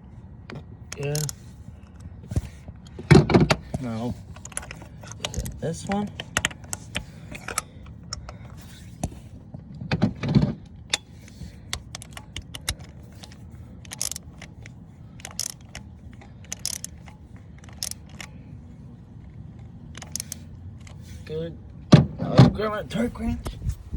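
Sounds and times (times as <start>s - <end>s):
ratchet wrench clicking: 0.9s - 2.0s, 10.9s - 18.3s, 19.9s - 21.0s.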